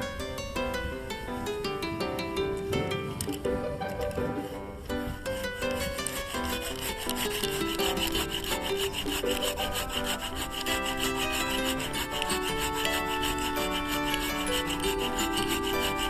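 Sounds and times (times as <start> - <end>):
background music of held notes: 0.0 - 16.0
hand saw cutting wood: 3.2 - 16.0.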